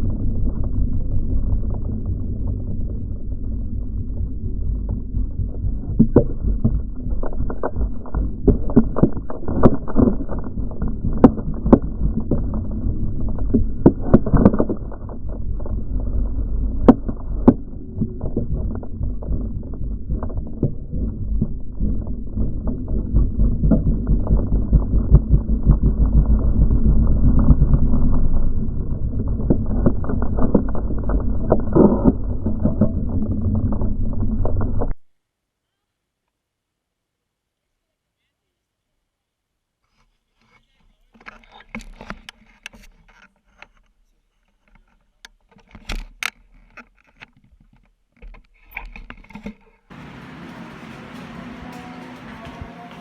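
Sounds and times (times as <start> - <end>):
sharp knocks and clatter: 4.2 - 27.9, 44.6 - 53.0
motorcycle engine rumble: 49.9 - 53.0.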